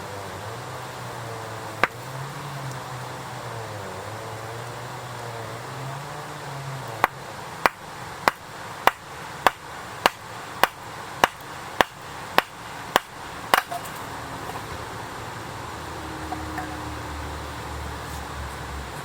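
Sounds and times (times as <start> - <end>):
hand tool striking wood: 7.0 - 14.7.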